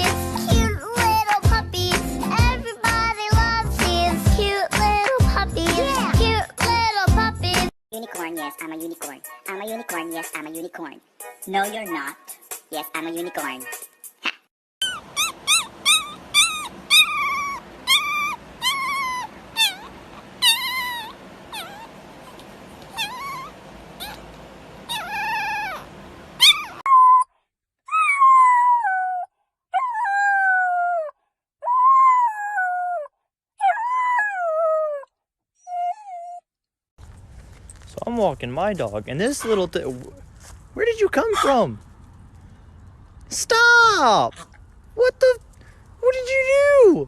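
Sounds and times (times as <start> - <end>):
dog yipping: 13.6 - 27.3, 27.9 - 36.4, 39.2 - 40.3, 41.2 - 41.7
dog howling: 14.8 - 24.3, 24.9 - 27.3, 27.9 - 36.4.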